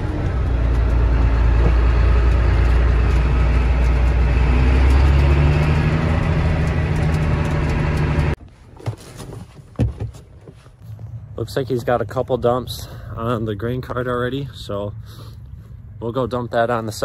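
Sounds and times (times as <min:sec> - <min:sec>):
tractor engine droning: 0:00.0 - 0:08.4.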